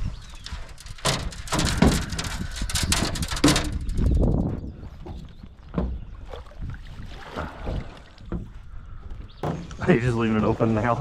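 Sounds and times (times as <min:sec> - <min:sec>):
irregular knocks and rattles: 0:00.0 - 0:06.3, 0:07.7 - 0:10.0
low wind rumble: 0:00.0 - 0:10.4.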